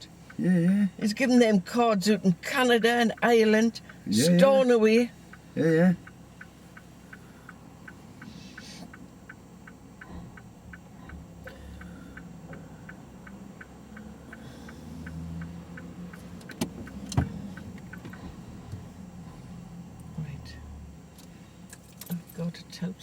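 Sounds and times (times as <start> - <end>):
turn-signal indicator ticking: 0.0 - 23.0.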